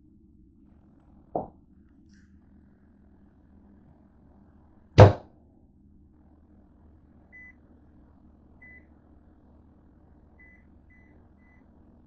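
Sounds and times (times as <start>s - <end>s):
faint low hum: 0.0s - 12.0s
microwave keypad beeps: 7.4s - 7.6s, 8.6s - 8.9s, 10.4s - 11.6s.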